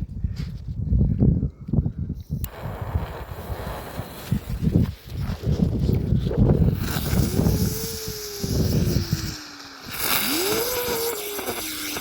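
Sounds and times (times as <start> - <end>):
wind on microphone: 0.0 - 12.0
spinning fireworks hissing: 2.4 - 12.0.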